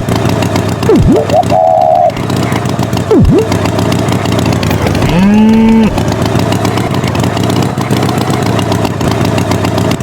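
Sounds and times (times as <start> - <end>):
tractor engine running: 0.0 - 10.0
bull mooing: 4.9 - 6.0.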